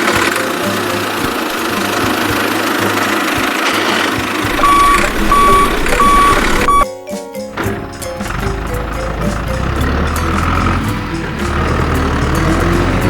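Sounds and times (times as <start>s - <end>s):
engine running: 0.0s - 6.8s, 7.5s - 13.0s
truck reversing beeper: 4.5s - 6.9s.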